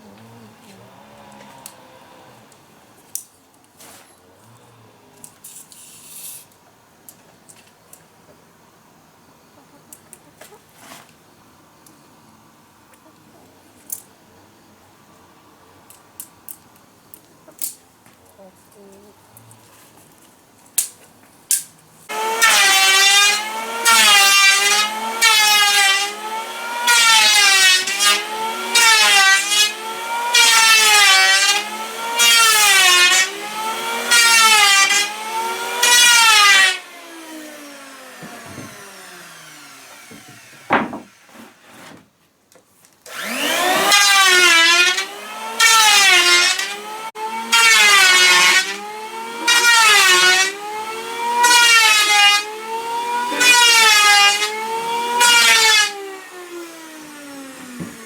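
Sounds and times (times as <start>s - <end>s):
power tool cutting wood: 0.0s - 2.8s, 22.1s - 41.7s, 43.1s - 58.0s.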